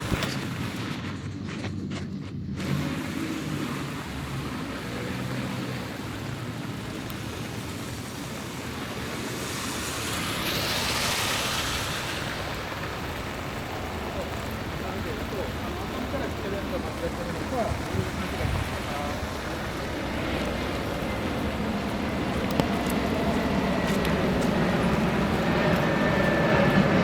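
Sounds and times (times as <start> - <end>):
rainy street noise: 0.0 - 27.0
traffic rumble: 0.0 - 27.0
hissing swell: 7.5 - 14.0.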